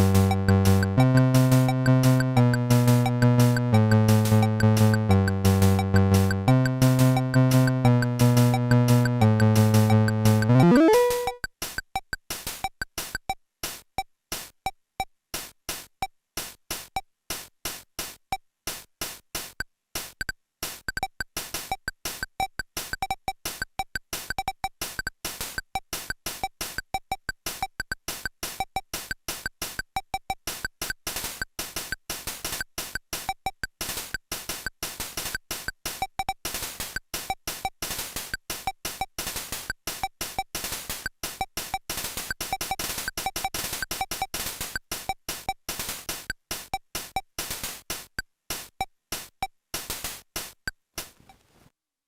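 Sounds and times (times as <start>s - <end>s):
electronic rhythm box beat: 0.0s - 11.4s
held synth note: 10.5s - 11.4s.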